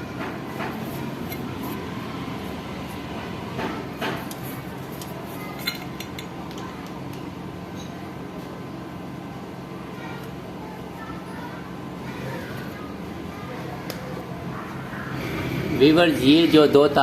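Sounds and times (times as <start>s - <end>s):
steady low hum: 0.0s - 17.0s
clicks and taps handling fan parts: 3.6s - 7.9s.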